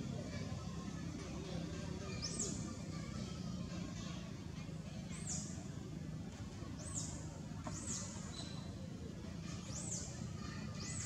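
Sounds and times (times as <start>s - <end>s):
bird chirping: 6.8s - 8.7s.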